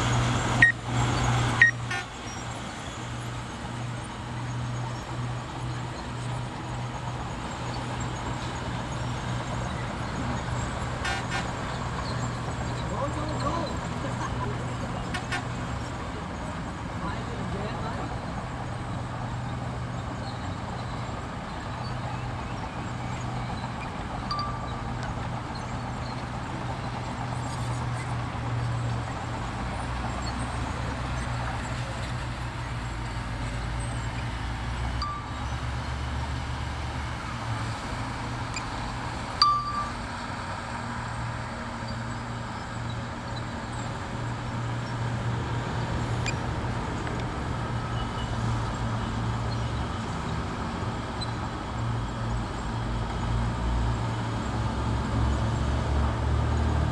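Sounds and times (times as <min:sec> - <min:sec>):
diesel engine running: 0:00.0 - 0:56.9
metallic clinks: 0:39.4 - 0:40.1.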